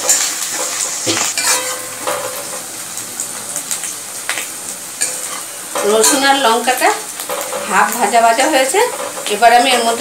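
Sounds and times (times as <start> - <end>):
metal spatula scraping a pan: 0.0 - 2.6, 5.0 - 10.0
garlic and chillies sizzling in oil: 0.0 - 10.0.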